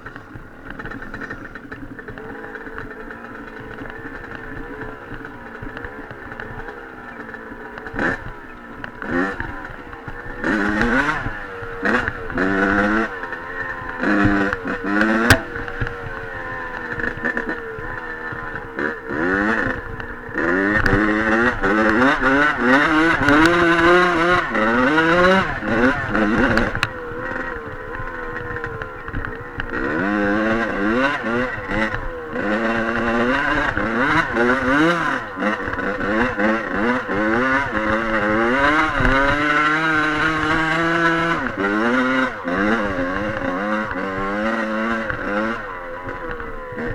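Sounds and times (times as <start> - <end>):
dirt bike engine revving: 10.4 - 15.9, 29.8 - 46.9.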